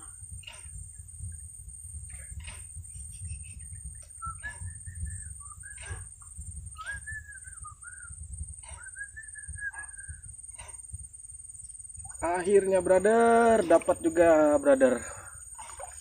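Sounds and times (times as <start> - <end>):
high-pitched insect drone: 0.0 - 16.0
low rumbling noise: 0.0 - 16.0
bird whistling and chirping: 3.1 - 10.4.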